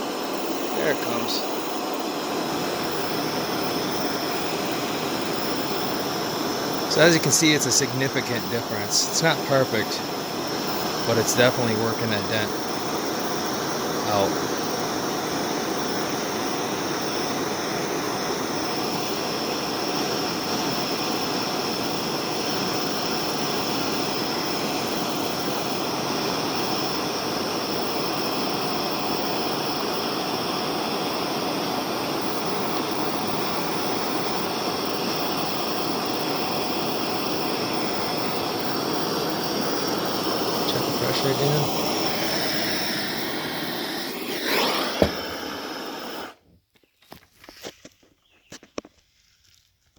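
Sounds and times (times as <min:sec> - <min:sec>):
gas torch flame rushing: 0:00.0 - 0:46.5
thin high whistle: 0:42.1 - 0:46.4.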